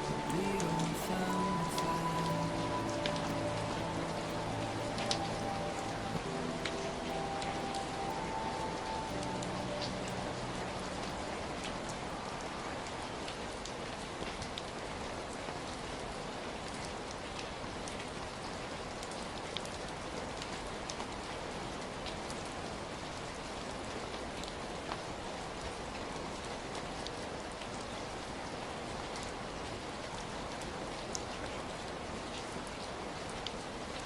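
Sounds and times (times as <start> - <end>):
raindrops ticking on surfaces: 0.0 - 34.0
steady rainfall: 0.0 - 34.0.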